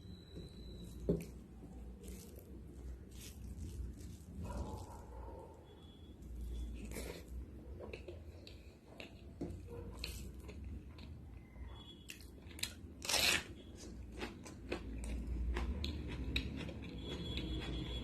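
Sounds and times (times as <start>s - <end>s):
person chewing and biting food: 13.8s - 17.9s.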